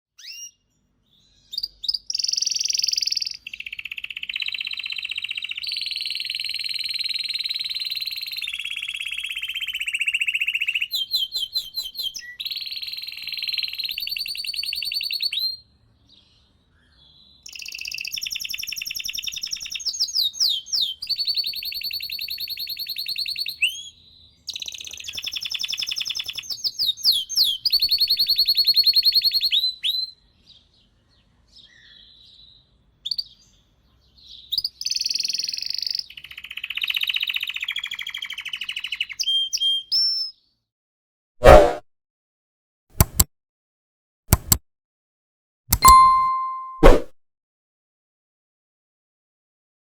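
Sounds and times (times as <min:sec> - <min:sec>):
canary singing trills: 0:00.2 - 0:15.5, 0:16.8 - 0:30.1, 0:34.3 - 0:40.4.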